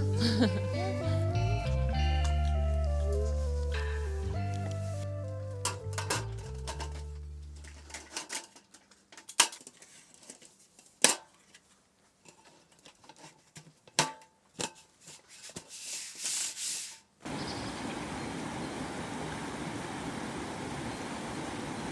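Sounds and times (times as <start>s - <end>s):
objects being handled knocks: 5.7s - 8.6s.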